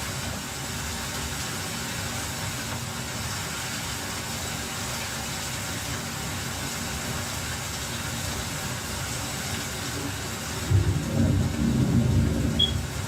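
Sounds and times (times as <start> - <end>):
rain falling: 0.0 - 13.0
low rumble: 10.7 - 12.6.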